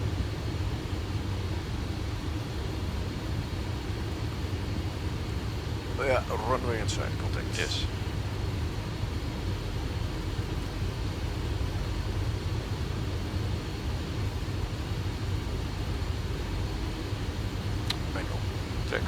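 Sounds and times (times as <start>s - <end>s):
rumble of airflow and engines: 0.0s - 19.0s
faint high whine: 5.4s - 9.5s, 10.2s - 19.0s.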